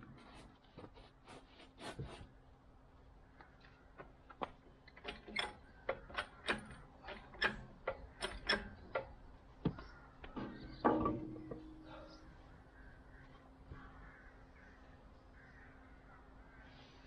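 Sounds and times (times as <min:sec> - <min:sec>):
faint steady hum: 0:00.0 - 0:17.0
mechanical clicks and light knocks: 0:03.6 - 0:11.6.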